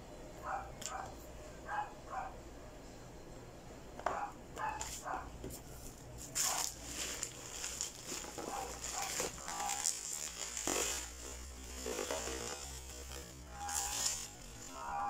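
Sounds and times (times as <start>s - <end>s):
steady low hum: 0.0s - 15.0s
bubble wrap crinkling: 4.8s - 15.0s.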